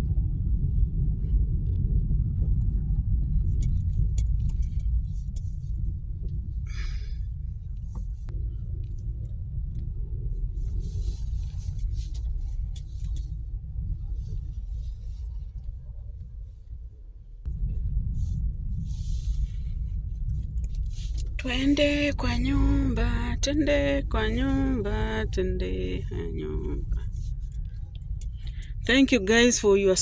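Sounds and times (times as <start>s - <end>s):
car road rumble: 0.0s - 30.0s.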